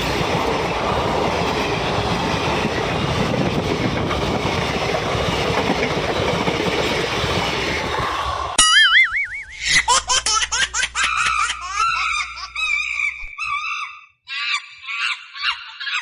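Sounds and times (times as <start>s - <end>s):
wavering high tone: 8.6s - 13.5s
high-pitched laughter: 8.6s - 16.0s.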